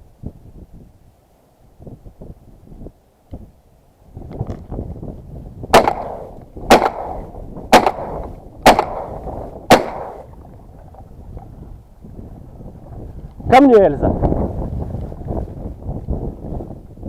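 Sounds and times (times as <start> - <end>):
wind on microphone: 0.0 - 17.0
shotgun shots echoing: 5.7 - 10.3.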